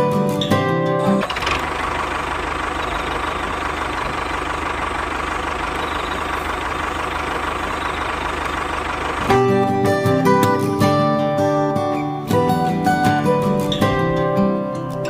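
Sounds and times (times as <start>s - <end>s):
motor running with low pulsing: 1.2s - 10.4s.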